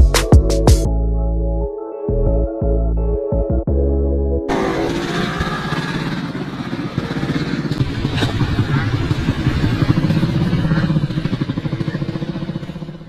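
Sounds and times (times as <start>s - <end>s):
dirt bike engines running: 4.5s - 13.0s.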